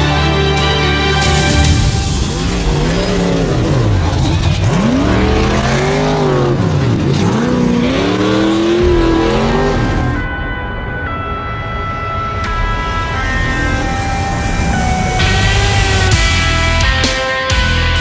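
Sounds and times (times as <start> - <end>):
engine revving hard: 1.7 - 10.3.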